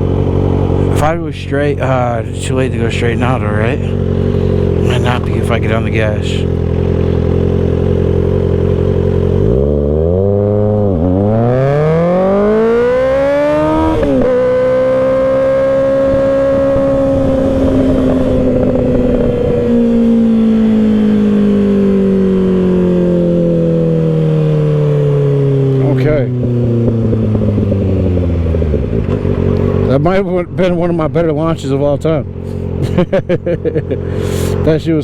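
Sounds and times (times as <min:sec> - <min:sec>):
motorcycle engine revving: 0:00.0 - 0:35.0
wind noise: 0:15.5 - 0:23.6.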